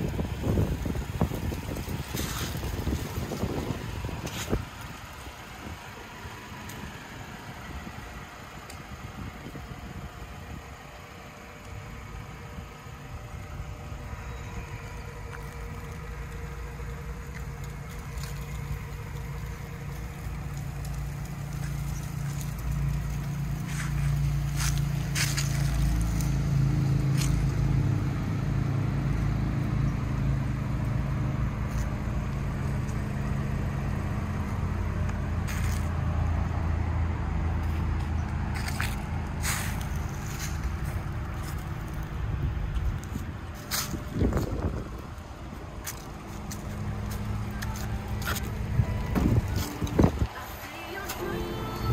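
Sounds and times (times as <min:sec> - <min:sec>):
car engine idling: 0:00.0 - 0:51.9
dry leaves crunching underfoot: 0:00.1 - 0:05.8, 0:15.2 - 0:27.7, 0:37.6 - 0:51.8.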